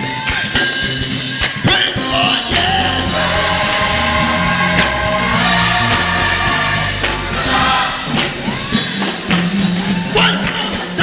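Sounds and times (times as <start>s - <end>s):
drums: 0.0s - 11.0s
choir singing: 1.9s - 11.0s
bass line: 2.0s - 10.2s.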